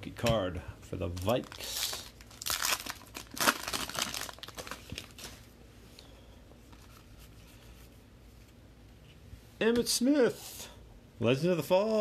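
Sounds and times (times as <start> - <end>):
wrapper crinkling: 1.1 - 5.5.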